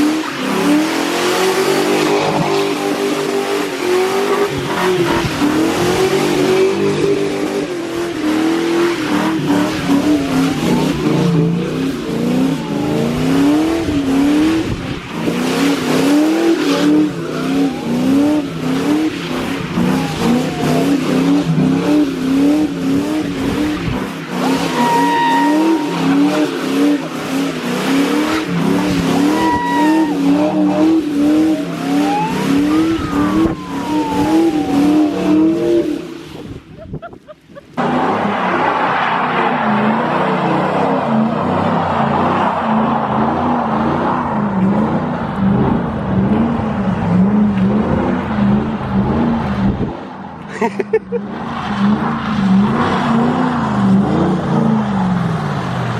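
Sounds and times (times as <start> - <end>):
car engine revving hard: 0.0 - 36.8, 51.2 - 55.9
tyres squealing: 24.3 - 35.5.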